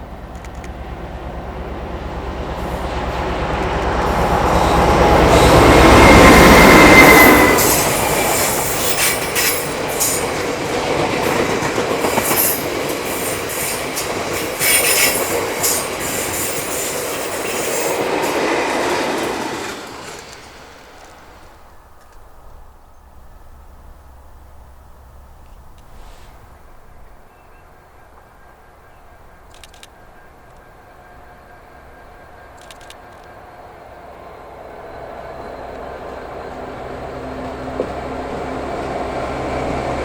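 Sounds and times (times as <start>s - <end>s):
diesel locomotive engine throbbing: 0.0s - 21.0s
wheel squeal: 4.4s - 10.2s, 14.6s - 18.0s.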